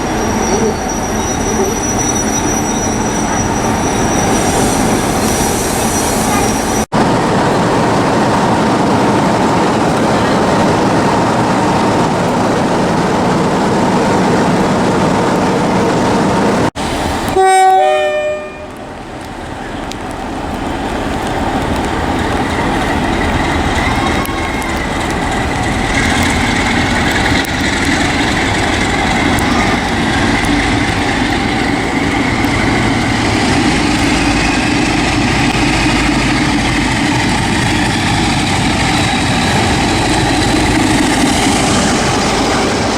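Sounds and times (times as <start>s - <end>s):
locomotive engine: 0.0s - 17.4s, 18.8s - 42.9s
train rail noise: 0.0s - 42.9s
train horn: 17.3s - 18.8s.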